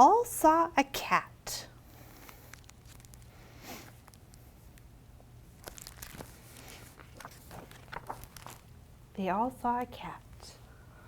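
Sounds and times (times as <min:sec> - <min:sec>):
low room hum: 0:00.0 - 0:11.0
paper rustling: 0:02.2 - 0:04.5, 0:05.6 - 0:08.8.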